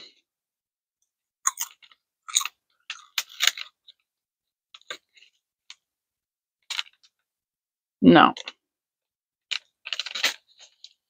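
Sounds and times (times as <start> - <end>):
crunching and chewing snack: 1.4 - 4.0, 9.5 - 11.0.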